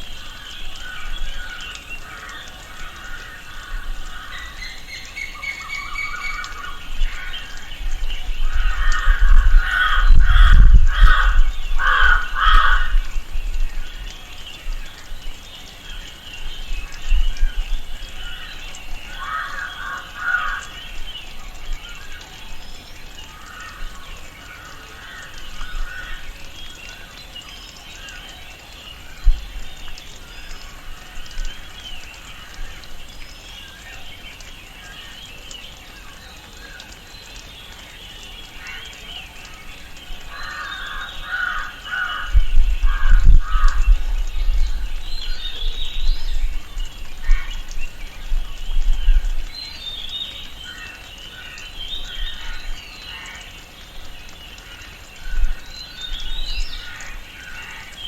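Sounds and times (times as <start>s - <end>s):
birds and insects chorus: 0.0s - 58.0s
harsh cawing bird calls: 0.2s - 13.3s, 18.0s - 22.2s, 23.1s - 33.0s, 38.2s - 48.2s, 50.4s - 58.0s.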